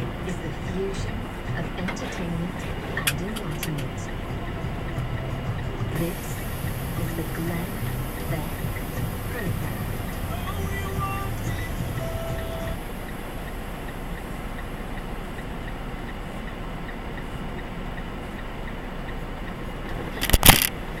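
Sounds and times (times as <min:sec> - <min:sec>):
faint regular ticking: 0:00.0 - 0:21.0
vehicle running noise: 0:00.0 - 0:21.0
loud sharp burst of noise: 0:03.9 - 0:15.5, 0:20.2 - 0:20.8.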